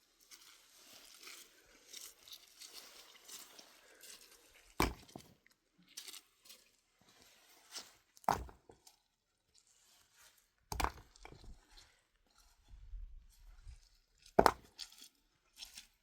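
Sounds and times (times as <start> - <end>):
rustling: 0.1 - 5.3.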